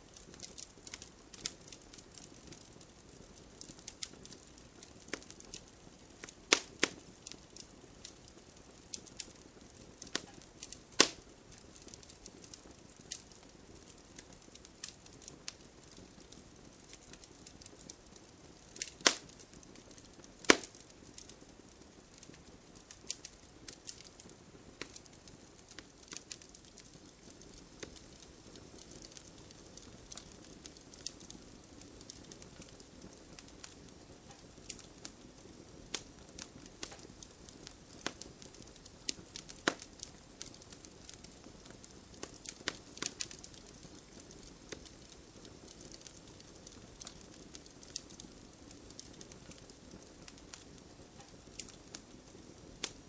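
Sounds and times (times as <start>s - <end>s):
light rain hiss: 0.0s - 53.0s
wood fire crackling: 0.0s - 53.0s.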